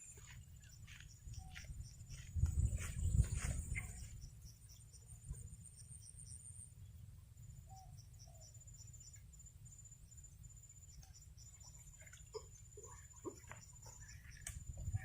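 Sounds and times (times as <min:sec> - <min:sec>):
insect trilling and chirping: 0:00.0 - 0:15.0.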